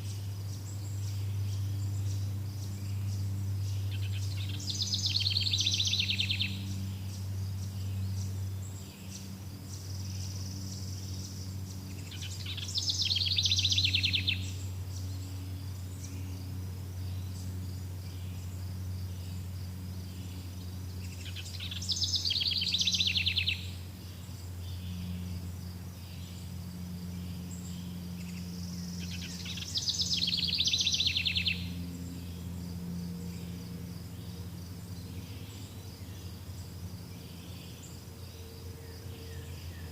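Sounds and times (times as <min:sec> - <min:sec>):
songbird singing trill: 0:00.0 - 0:39.9
steady low hum: 0:00.0 - 0:39.9.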